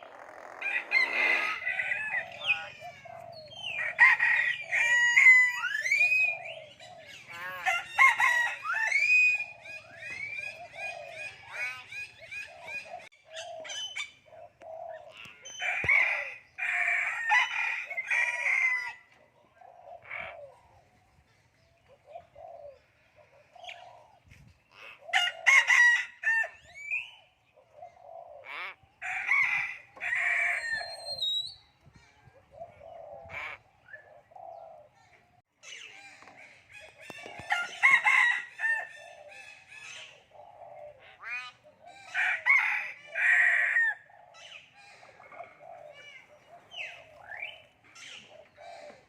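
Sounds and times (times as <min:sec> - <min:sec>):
loud bird calls: 0:00.0 - 0:49.0.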